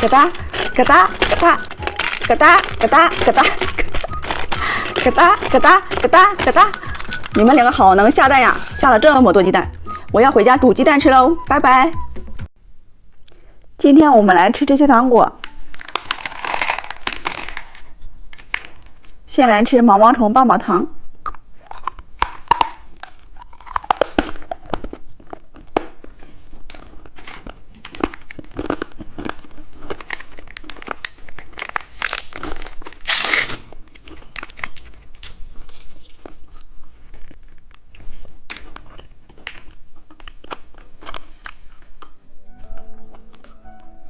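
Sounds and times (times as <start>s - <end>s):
wrapper ripping: 0.0s - 9.2s, 15.5s - 19.2s, 21.8s - 42.2s
plastic wrapper crinkling: 0.0s - 10.1s, 15.4s - 19.2s, 22.2s - 42.3s.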